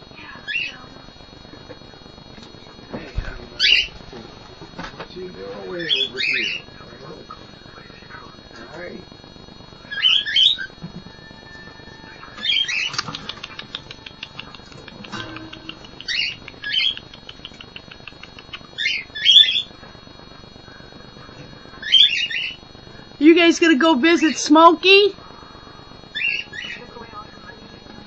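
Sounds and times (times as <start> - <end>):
faint rapid bird chatter: 0.2 - 0.9, 3.6 - 4.0, 5.6 - 8.3, 9.8 - 10.8, 12.0 - 19.8, 20.7 - 22.7, 26.1 - 27.7
cockatiels chirping: 3.6 - 3.9, 5.6 - 6.7, 9.9 - 10.7, 12.1 - 19.7, 21.8 - 22.6, 26.1 - 26.9.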